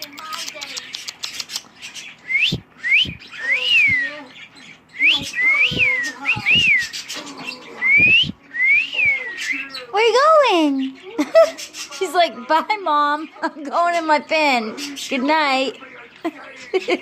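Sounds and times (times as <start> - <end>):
cockatiel whistling: 2.2 - 4.3, 5.0 - 9.9.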